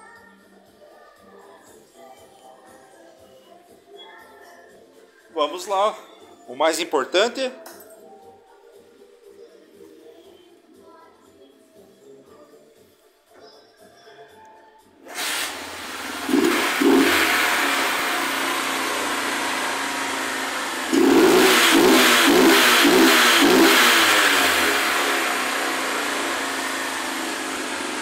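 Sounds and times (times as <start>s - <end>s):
motorcycle engine starting: 15.0s - 28.0s
motorcycle engine idling: 15.7s - 28.0s.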